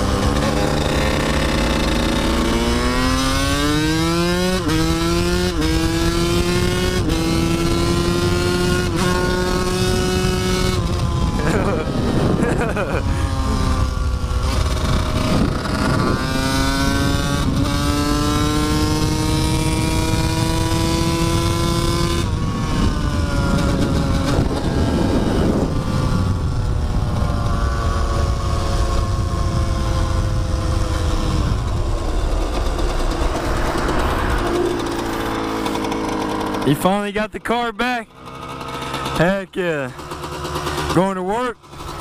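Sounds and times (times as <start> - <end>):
heavy low rumble: 22.2 - 38.2
dirt bike engine under load: 38.2 - 42.0.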